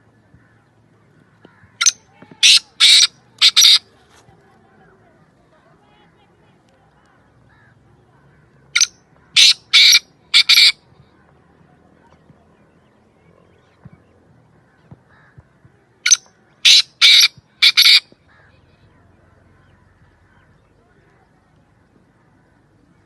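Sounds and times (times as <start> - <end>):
bird harsh grating calls: 1.6 - 3.8, 8.8 - 10.8, 16.1 - 18.0.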